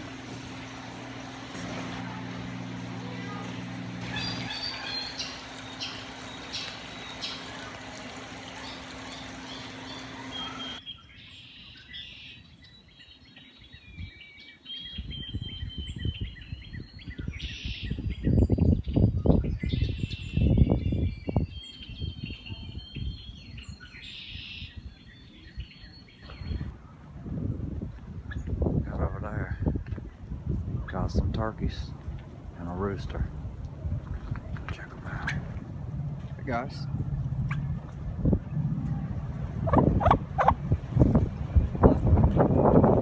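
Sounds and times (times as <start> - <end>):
low rumbling noise: 0.0 - 10.8, 26.3 - 43.0
steady hiss and hum: 0.0 - 10.8
small birds chirping: 0.1 - 26.8, 36.3 - 42.7.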